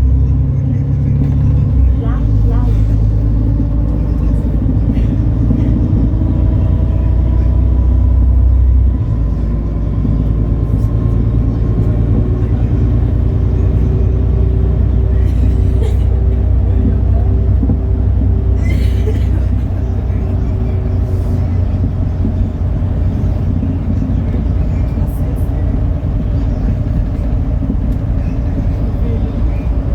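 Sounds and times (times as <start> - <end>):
bus diesel engine rumble: 0.0 - 29.9.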